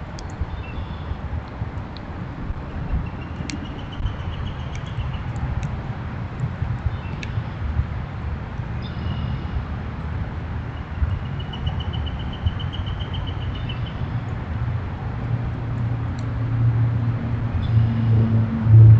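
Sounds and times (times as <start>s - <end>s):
steady low rumble: 0.0s - 18.9s.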